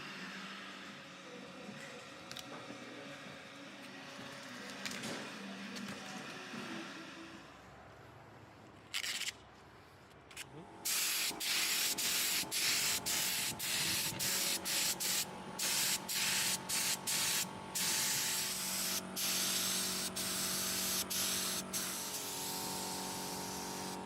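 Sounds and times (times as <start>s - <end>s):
compressed-air spray gun hissing: 10.8s - 24.0s.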